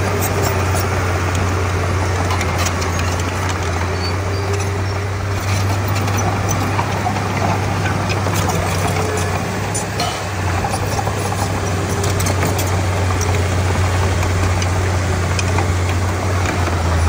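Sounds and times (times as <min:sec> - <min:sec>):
bulldozer diesel engine droning: 0:00.0 - 0:17.0
light clicks and clanks: 0:02.1 - 0:17.0.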